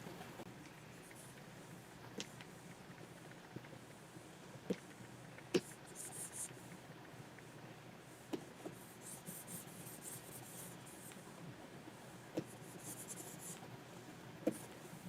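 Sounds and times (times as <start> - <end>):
stylus scratching on screen: 5.6 - 6.6, 8.7 - 11.1, 12.4 - 13.6.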